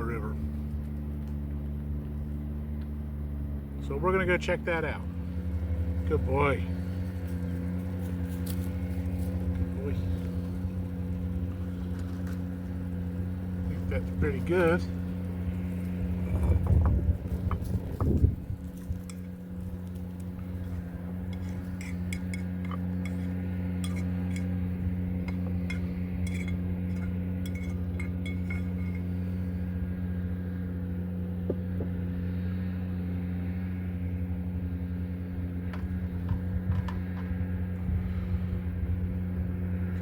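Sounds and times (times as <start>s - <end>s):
low mechanical hum: 0.0s - 40.0s
utensil clinking against dishes: 21.3s - 24.5s, 25.2s - 29.1s.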